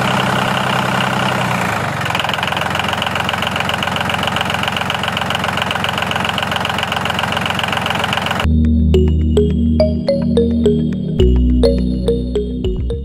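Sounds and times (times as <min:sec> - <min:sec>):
engine knocking steadily: 0:00.0 - 0:08.5.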